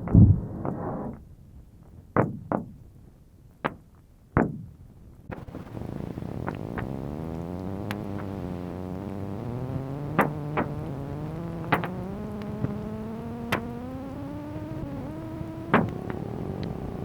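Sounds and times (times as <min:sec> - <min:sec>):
low drone with pitched tones: 0:05.3 - 0:17.0.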